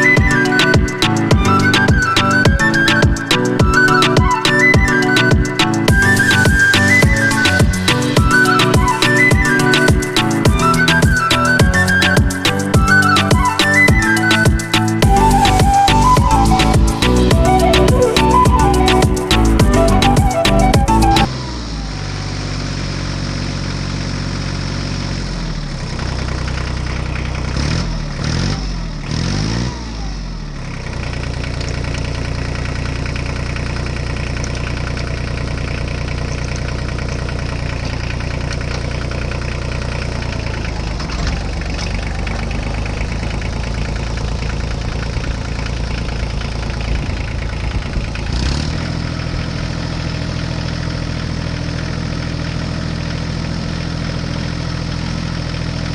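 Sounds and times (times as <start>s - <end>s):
small engine revving: 21.0s - 32.5s, 48.0s - 50.1s.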